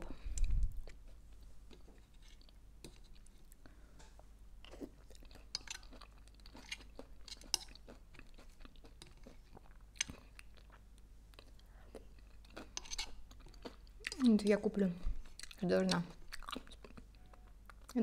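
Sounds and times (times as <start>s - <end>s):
chewing salad crunches: 4.7s - 14.4s, 15.2s - 18.0s.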